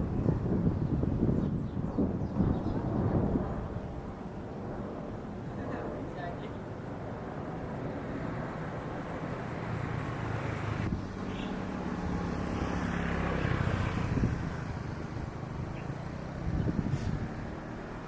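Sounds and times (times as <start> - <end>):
jet airliner engines roaring: 0.0 - 18.0.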